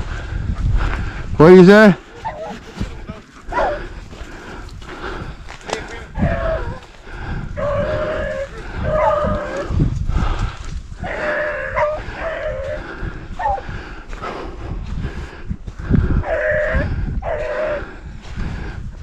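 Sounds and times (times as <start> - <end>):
dogs baying: 2.1 - 4.0, 6.1 - 6.9, 7.6 - 9.8, 11.0 - 13.7, 16.2 - 17.9.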